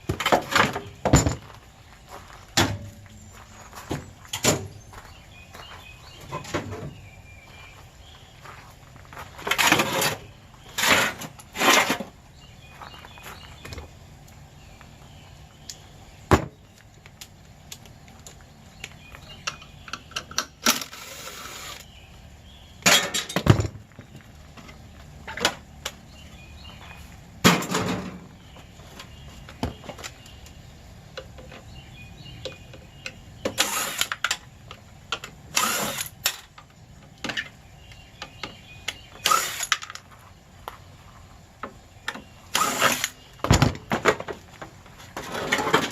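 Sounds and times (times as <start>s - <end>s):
metal clanking and scraping: 0.0s - 1.5s, 9.3s - 12.2s, 22.8s - 23.9s, 27.4s - 28.4s, 45.0s - 45.9s.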